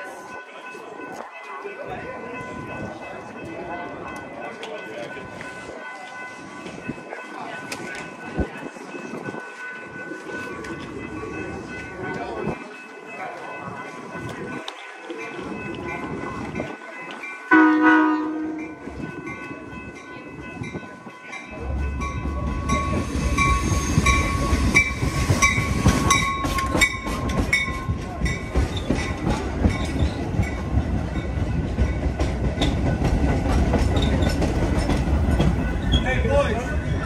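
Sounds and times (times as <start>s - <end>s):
train cars rumbling past: 1.9s - 37.0s
train horn blast: 17.5s - 18.7s.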